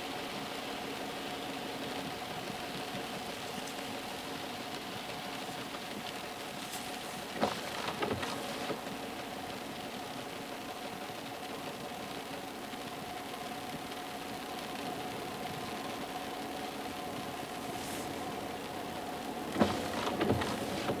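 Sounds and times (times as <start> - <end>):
road and rain noise: 0.0 - 21.0
car engine hum: 17.3 - 21.0.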